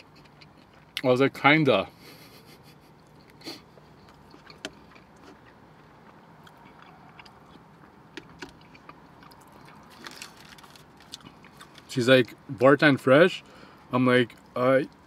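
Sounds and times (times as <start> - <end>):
chewing and mouth sounds: 0.0 - 1.1, 3.0 - 11.9.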